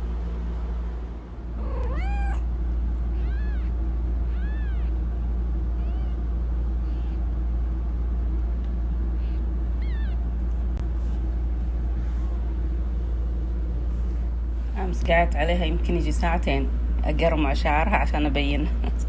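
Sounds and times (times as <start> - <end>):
steady low hum: 0.0 - 19.0
kittens mewing: 1.6 - 5.1, 5.7 - 7.3, 9.1 - 10.4.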